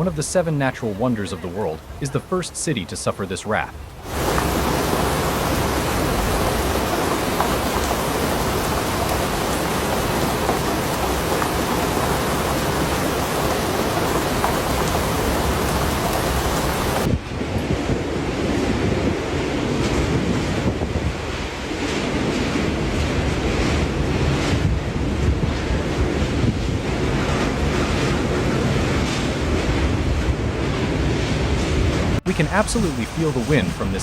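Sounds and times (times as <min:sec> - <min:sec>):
surf: 0:00.0 - 0:17.1, 0:31.8 - 0:34.0
wind buffeting microphone: 0:03.8 - 0:34.0.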